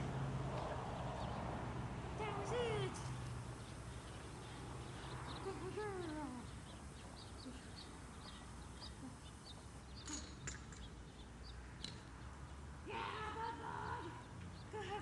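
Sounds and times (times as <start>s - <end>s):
low outdoor rumble: 0.0s - 10.0s
high bird chirps: 3.6s - 12.0s.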